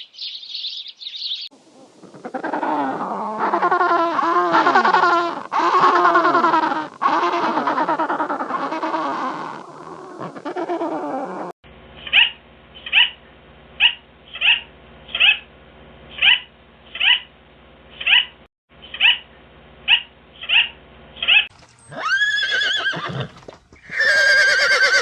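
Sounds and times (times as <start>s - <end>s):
horse whinnying: 21.9s - 25.0s.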